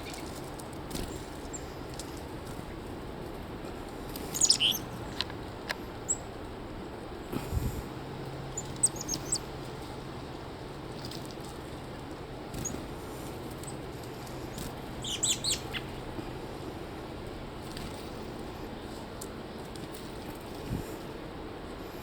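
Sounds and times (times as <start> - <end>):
chickadees chirping: 0.0 - 0.4, 4.1 - 5.2, 6.0 - 6.3, 8.4 - 9.7, 12.5 - 16.4.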